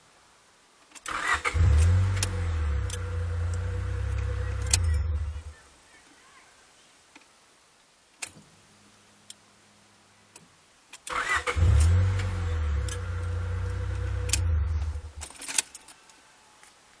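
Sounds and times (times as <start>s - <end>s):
car engine starting and running: 1.0s - 5.5s, 11.0s - 15.6s.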